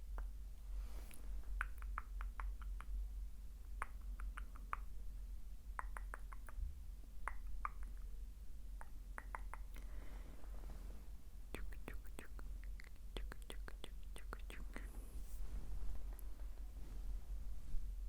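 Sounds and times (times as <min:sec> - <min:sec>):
low microphone hum: 0:00.0 - 0:18.0
wet lip and tongue clicks: 0:01.5 - 0:03.0, 0:03.8 - 0:04.9, 0:05.8 - 0:06.6, 0:07.2 - 0:08.0, 0:08.8 - 0:09.9, 0:11.5 - 0:14.9.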